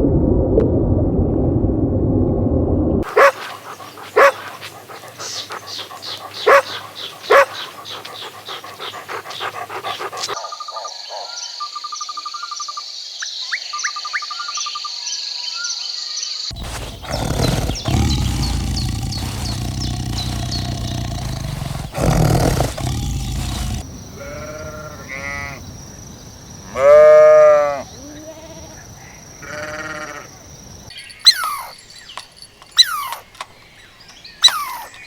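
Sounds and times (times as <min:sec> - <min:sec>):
dog barking: 0:03.0 - 0:11.4, 0:16.5 - 0:23.8.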